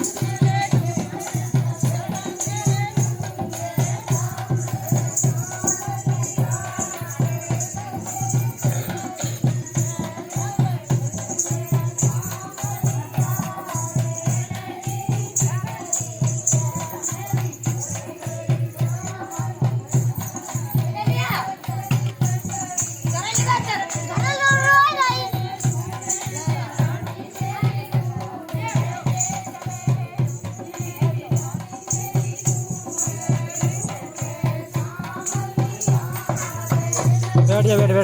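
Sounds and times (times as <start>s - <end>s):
jingling percussion: 0.0s - 38.0s
steady drum beat: 0.0s - 38.0s
folk dance song music: 20.4s - 38.0s.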